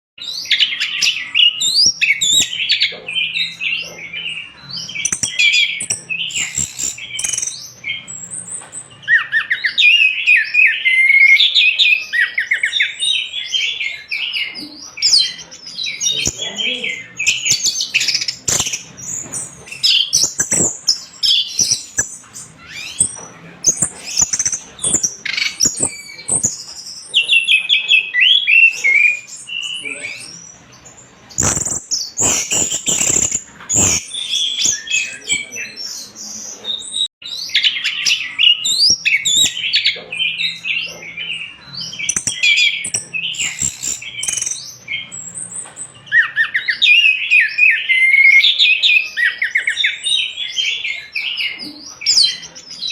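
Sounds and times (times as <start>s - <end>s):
sharp clicks: 31.4s - 34.0s.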